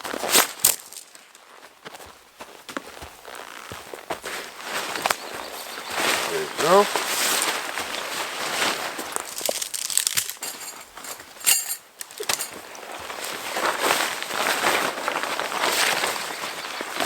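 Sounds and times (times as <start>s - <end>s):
tent rustling: 2.5s - 17.0s
metallic clink-rattle: 9.9s - 12.6s.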